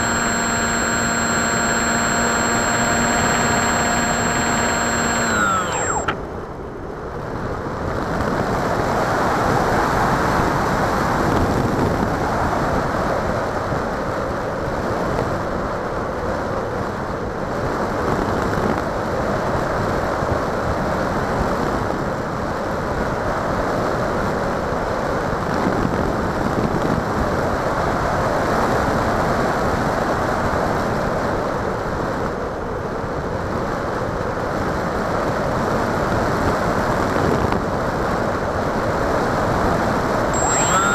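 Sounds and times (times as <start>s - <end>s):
motor whine: 0.0s - 6.3s, 40.4s - 40.9s
wind rushing over model plane: 0.0s - 6.3s.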